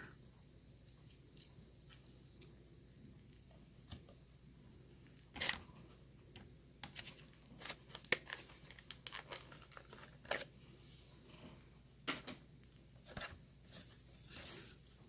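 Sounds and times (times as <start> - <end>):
plastic packaging crinkling: 6.8 - 10.5
packaging ripping: 7.6 - 10.5.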